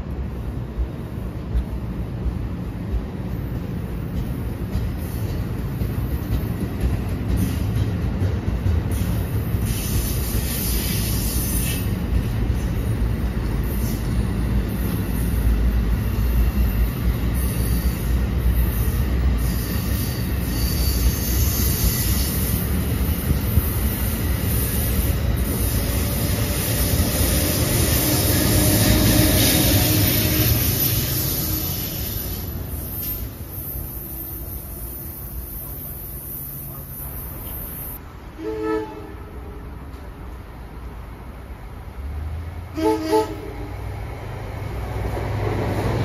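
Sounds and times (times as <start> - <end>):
train wheels rumbling on rail: 0.0 - 46.0
high wheel squeals: 13.6 - 35.7.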